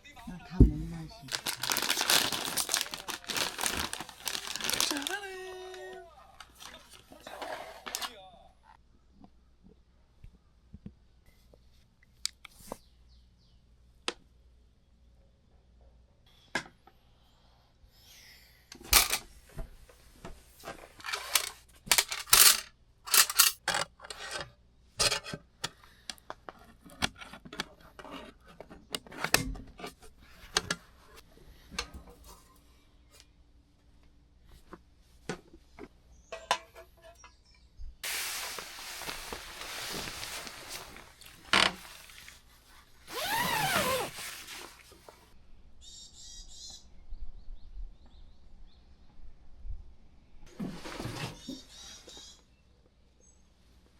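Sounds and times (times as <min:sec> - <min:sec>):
metal dishes clinking and scraping: 0:21.0 - 0:25.4
steady hiss: 0:38.0 - 0:41.3.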